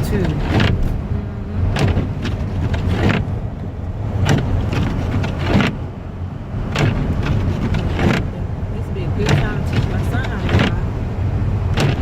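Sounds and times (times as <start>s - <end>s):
engine and road rumble: 0.0s - 12.0s.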